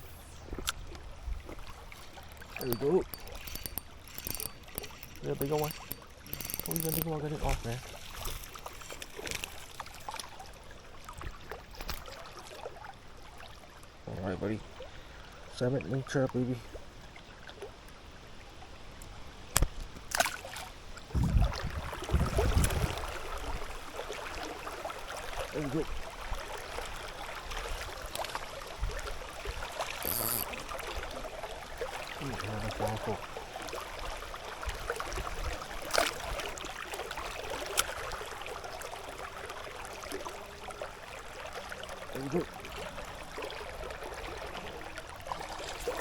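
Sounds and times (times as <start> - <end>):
river water splashing: 0.7 - 13.8, 20.1 - 20.8, 21.5 - 46.0
sharp clicks: 2.4 - 7.1, 30.0 - 30.5.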